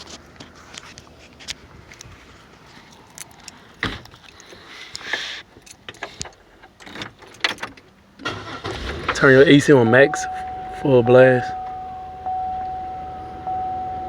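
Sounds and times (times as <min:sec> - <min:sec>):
car keys rattling: 0:00.7 - 0:12.8
car door handled: 0:03.8 - 0:04.3.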